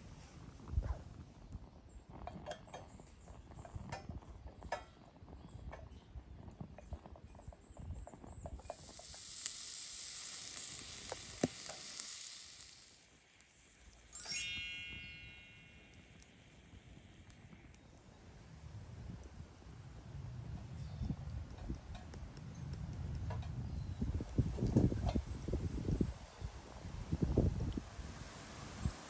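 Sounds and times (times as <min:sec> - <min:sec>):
food sizzling in a grill pan: 0:08.6 - 0:17.3
short bright ringing tone: 0:14.1 - 0:16.6.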